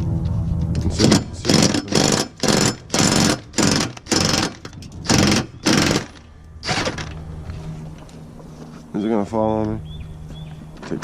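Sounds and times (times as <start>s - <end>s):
impact wrench hammering: 1.0s - 7.1s.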